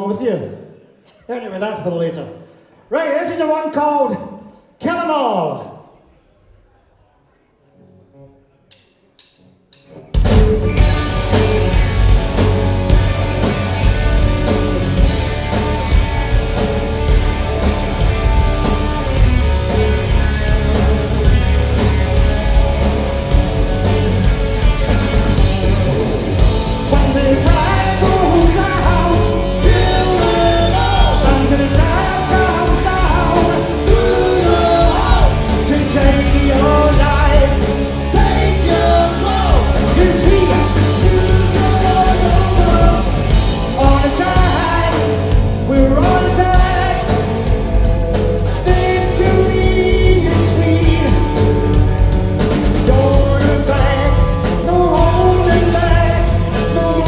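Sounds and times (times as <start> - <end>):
rock band playing: 8.8 - 57.0
lead singer singing: 25.4 - 57.0.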